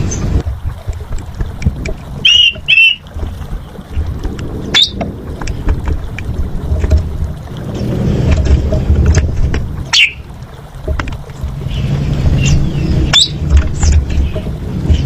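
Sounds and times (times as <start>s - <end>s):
wind rumble on microphone: 0.0s - 15.0s
starling whistled calls: 2.2s - 3.0s, 4.7s - 5.0s, 9.9s - 10.2s, 12.4s - 14.5s.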